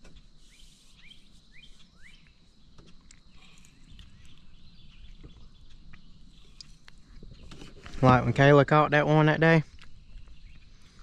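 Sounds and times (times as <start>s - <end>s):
bird chirping faintly: 0.0s - 8.4s.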